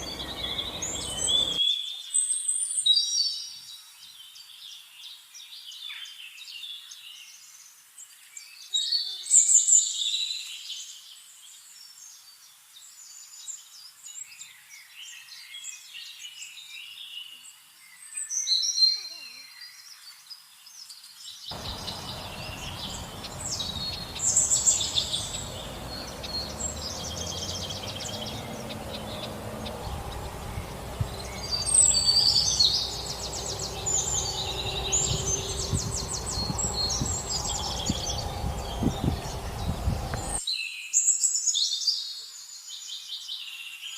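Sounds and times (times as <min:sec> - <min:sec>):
birds chirping and trilling: 0:00.0 - 0:01.6, 0:21.5 - 0:40.4
low outdoor background hum: 0:00.0 - 0:01.6, 0:21.5 - 0:40.4.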